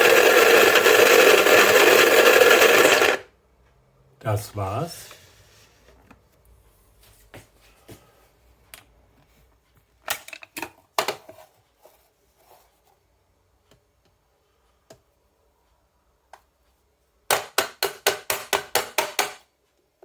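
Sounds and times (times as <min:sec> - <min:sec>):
coffee grinder parts clicking: 0:00.0 - 0:03.2.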